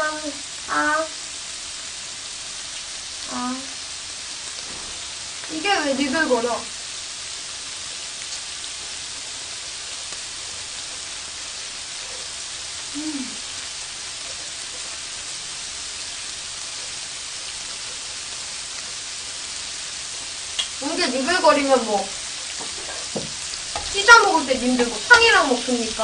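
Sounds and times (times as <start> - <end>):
shrimp sizzling on a grill pan: 0.0 - 26.0
person humming: 12.9 - 13.5.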